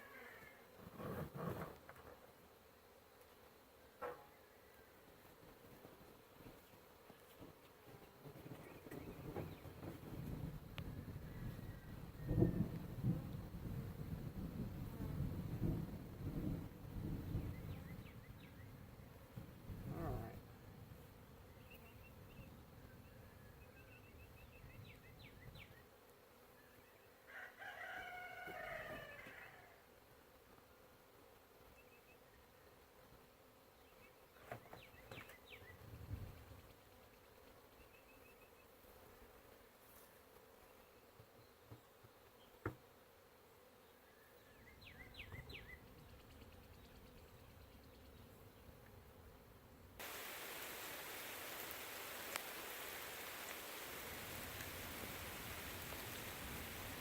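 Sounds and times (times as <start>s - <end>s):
bees humming: 50.0s - 57.0s
long bird call: 50.0s - 57.0s.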